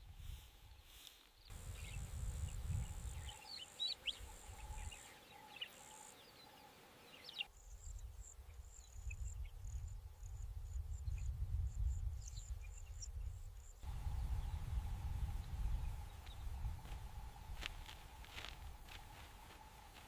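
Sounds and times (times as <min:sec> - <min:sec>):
bird chirps: 0:01.7 - 0:09.6.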